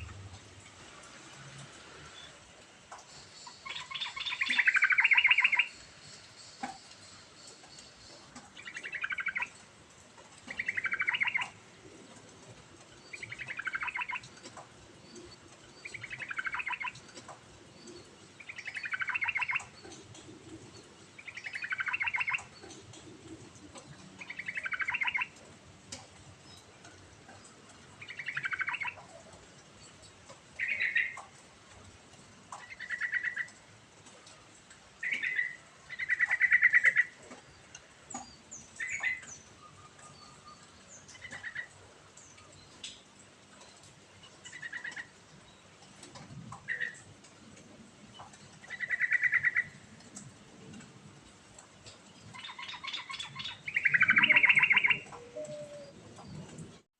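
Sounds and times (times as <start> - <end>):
bulbul singing: 52.3 - 56.0.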